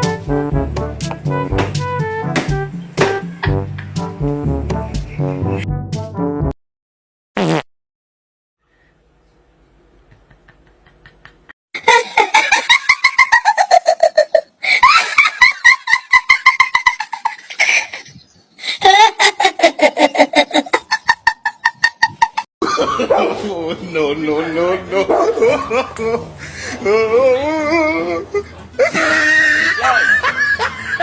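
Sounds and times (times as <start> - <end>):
hearty laughter: 9.8 - 23.4, 24.4 - 31.0.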